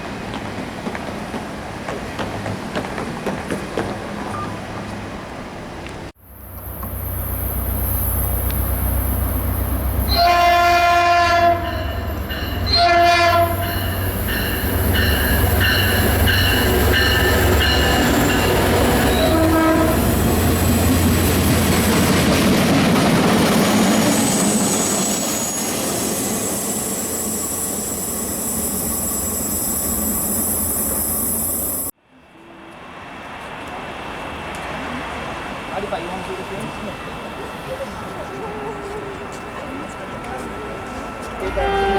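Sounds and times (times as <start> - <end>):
train rumble and rail noise: 0.0 - 41.9
locomotive drone: 6.2 - 41.9
train horn blasts: 10.1 - 20.2, 41.4 - 41.9.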